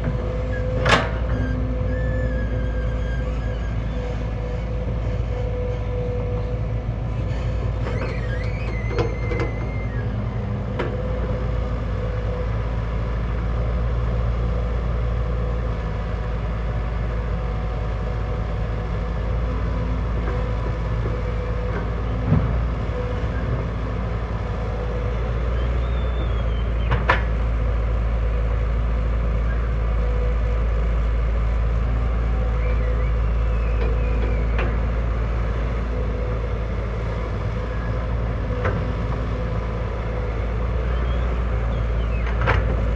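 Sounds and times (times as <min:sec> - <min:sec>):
diesel engine running: 0:00.0 - 0:42.9
faint squeak: 0:00.5 - 0:06.5, 0:07.1 - 0:10.2.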